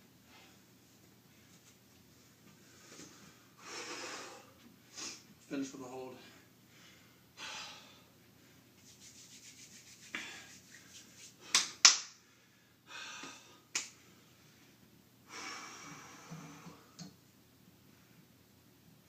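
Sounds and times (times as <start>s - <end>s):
man breathing hard: 2.7s - 5.2s, 6.7s - 8.7s, 11.4s - 17.0s.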